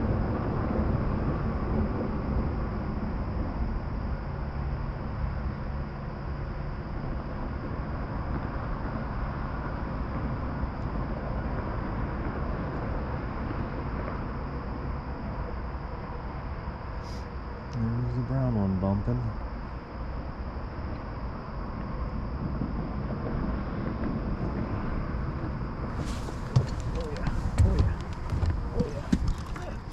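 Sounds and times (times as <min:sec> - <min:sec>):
insect drone: 0:00.0 - 0:29.9
outdoor rushing noise: 0:22.3 - 0:29.9.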